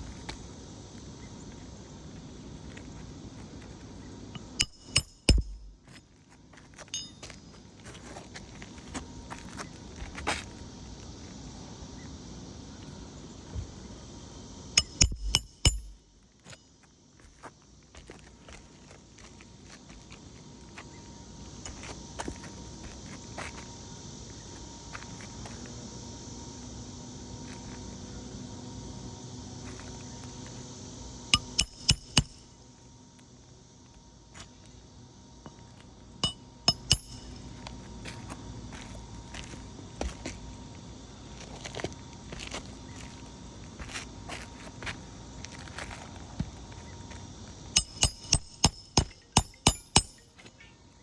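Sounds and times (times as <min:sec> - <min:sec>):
hammer striking metal: 0:04.4 - 0:06.0, 0:06.9 - 0:07.4, 0:14.8 - 0:16.2, 0:31.4 - 0:32.4, 0:36.2 - 0:37.6, 0:47.8 - 0:50.5
tool clinking on metal: 0:04.4 - 0:06.0, 0:06.9 - 0:07.4, 0:14.8 - 0:16.6, 0:31.4 - 0:32.4, 0:36.2 - 0:37.6, 0:47.8 - 0:50.6.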